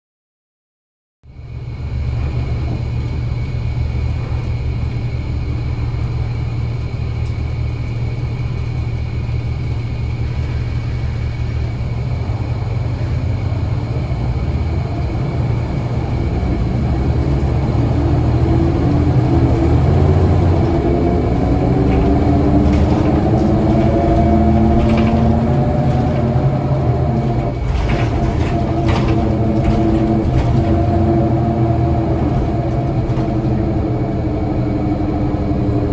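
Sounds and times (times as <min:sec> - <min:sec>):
bus diesel engine accelerating: 0:01.3 - 0:35.9
rattles: 0:18.4 - 0:34.0.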